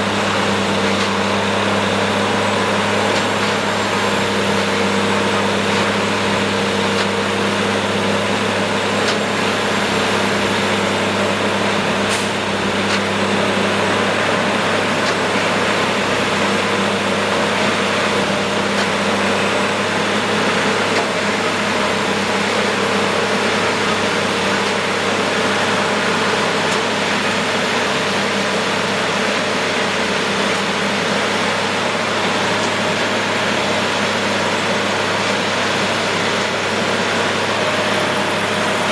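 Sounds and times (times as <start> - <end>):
tamping machine droning: 0.0 - 38.9.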